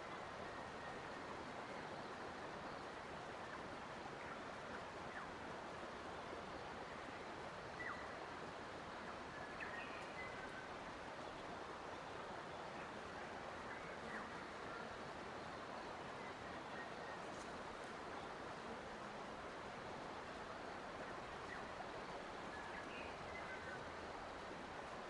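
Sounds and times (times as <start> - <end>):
faint bird chirps: 7.7 - 8.2, 9.0 - 18.5, 20.7 - 24.1.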